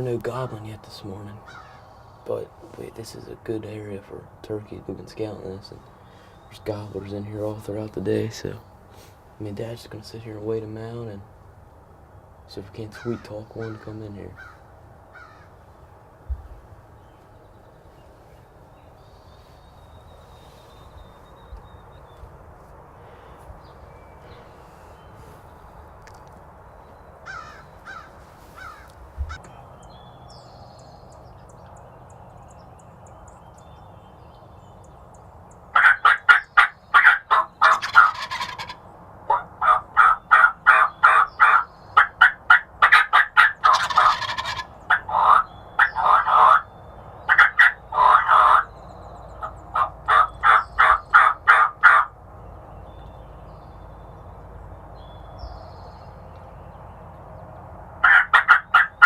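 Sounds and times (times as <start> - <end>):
turkey yelping: 35.7 - 48.7, 49.3 - 52.2, 58.0 - 59.0.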